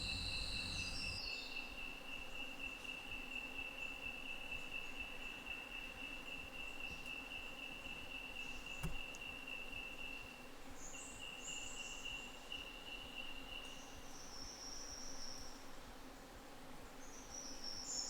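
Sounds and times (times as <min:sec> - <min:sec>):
insect high-pitched drone: 0:00.0 - 0:01.2
short buzzy insect calls: 0:00.0 - 0:01.3
sharp click: 0:08.8 - 0:09.2.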